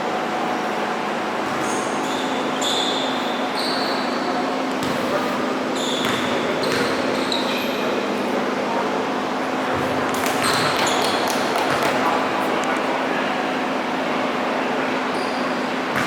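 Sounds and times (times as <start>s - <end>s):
gym background hum: 0.0s - 16.0s
sneakers squeaking: 0.5s - 8.1s, 9.6s - 12.7s, 15.0s - 16.0s
basketball bouncing on floor: 9.8s - 12.0s.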